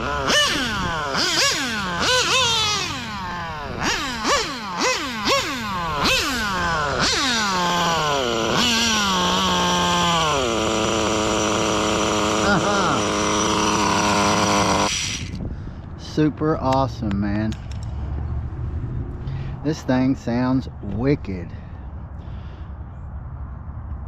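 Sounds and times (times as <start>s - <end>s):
small nitro engine revving: 0.0s - 15.4s.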